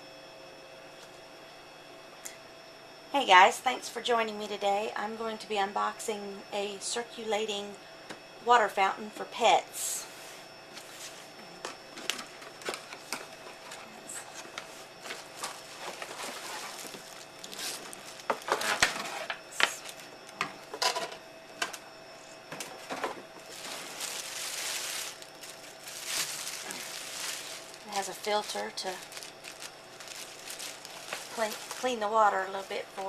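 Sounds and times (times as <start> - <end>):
packaging rustling scrape: 14.6 - 20.0, 23.4 - 32.7.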